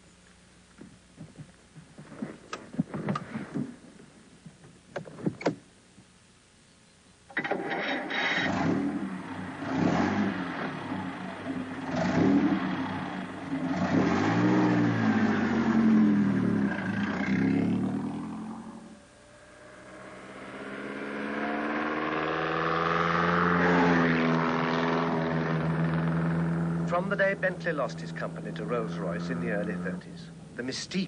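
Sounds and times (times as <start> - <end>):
racing car engine revving: 8.4 - 30.2.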